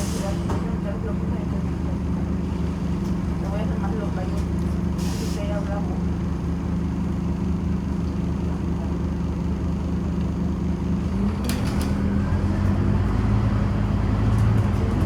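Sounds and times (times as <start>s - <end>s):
bus engine revving: 11.0s - 15.0s.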